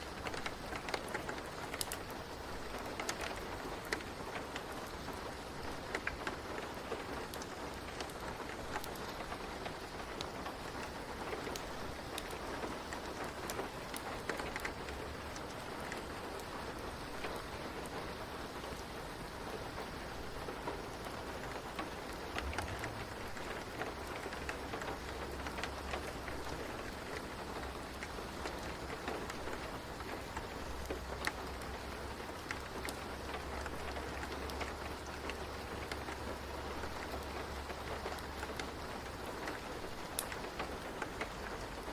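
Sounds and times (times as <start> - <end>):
steady rain falling: 0.0 - 41.9
faint low rumble: 21.2 - 27.8.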